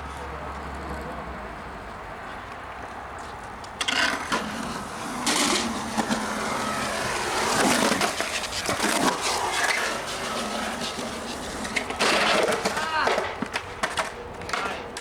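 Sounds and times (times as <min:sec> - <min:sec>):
skateboard wheels rumbling on concrete: 0:01.9 - 0:15.0
skateboard clacks and knocks: 0:03.8 - 0:15.0.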